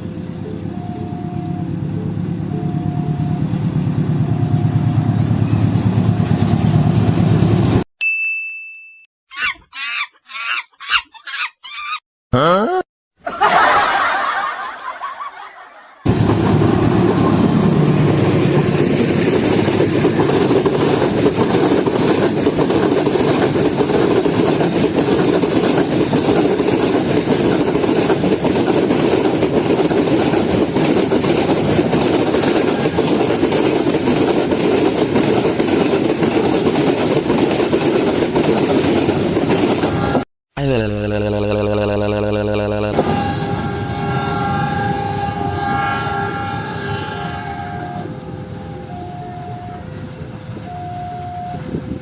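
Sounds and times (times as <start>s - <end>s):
train rumbling and rattling: 0.0s - 7.8s, 16.1s - 40.2s, 43.0s - 52.0s.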